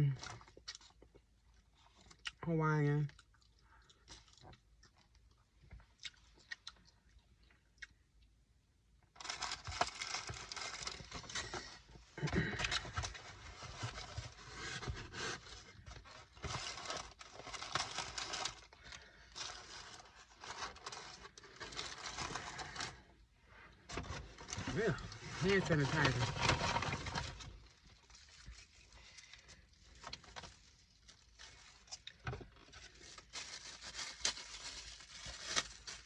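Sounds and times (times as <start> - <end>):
food packaging rustling: 9.2 - 23.1, 23.9 - 36.0.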